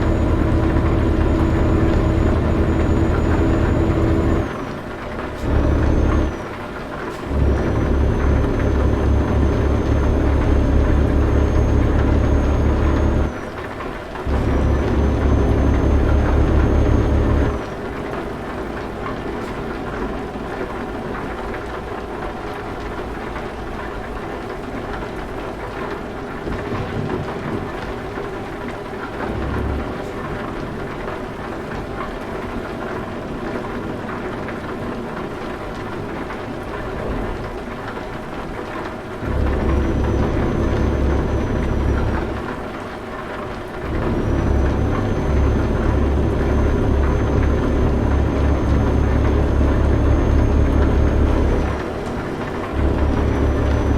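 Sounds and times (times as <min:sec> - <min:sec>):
heavy low rumble: 0:00.0 - 0:04.5, 0:07.1 - 0:13.4, 0:14.2 - 0:17.8, 0:29.2 - 0:30.4, 0:39.2 - 0:42.6, 0:43.8 - 0:53.9
truck engine running: 0:00.0 - 0:31.9, 0:36.0 - 0:53.9.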